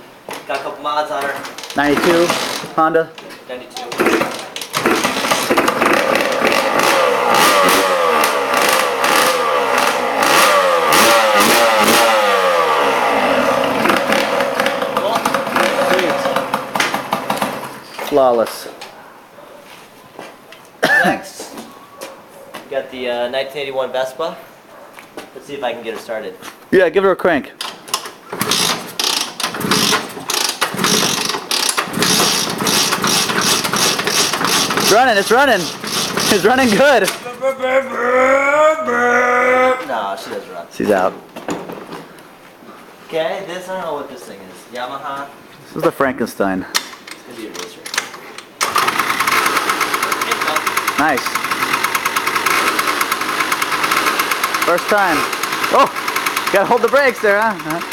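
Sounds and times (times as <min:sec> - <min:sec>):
motorcycle engine revving: 0:04.0 - 0:17.8, 0:28.4 - 0:37.3, 0:48.6 - 0:57.9.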